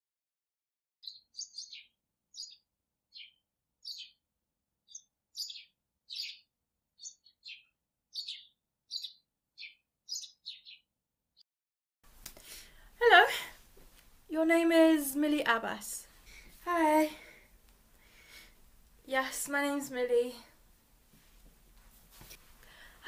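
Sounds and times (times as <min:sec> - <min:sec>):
small bird chirping: 0:01.0 - 0:11.4.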